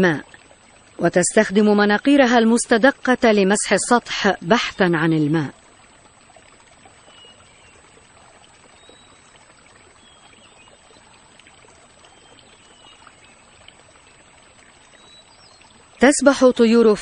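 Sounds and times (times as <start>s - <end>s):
marsh water trickling: 0.0s - 17.0s.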